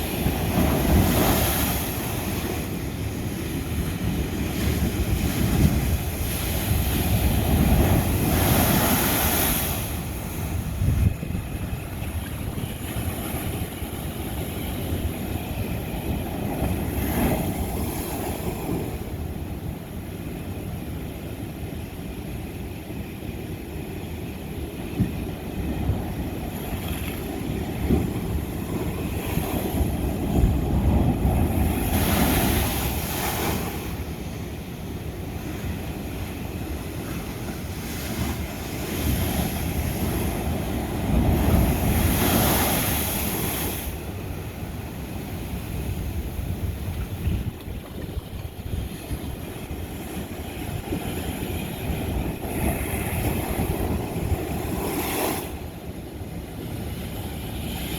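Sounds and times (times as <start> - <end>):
ocean waves crashing on rocks: 0.0 - 21.4, 23.0 - 57.9.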